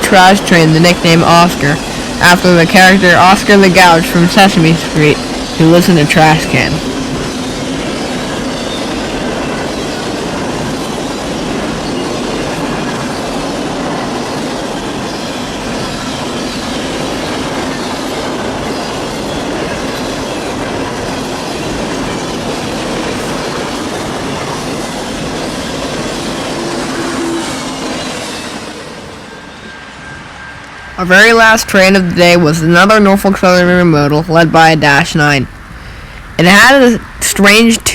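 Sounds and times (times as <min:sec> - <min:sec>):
freight train rumbling past: 0:00.0 - 0:37.9
wheel squeal: 0:06.5 - 0:22.8, 0:24.4 - 0:31.0.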